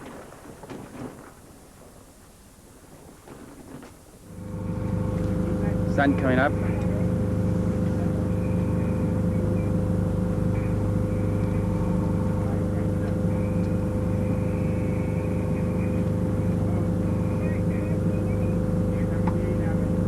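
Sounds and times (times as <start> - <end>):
low mechanical drone: 4.2 - 20.0.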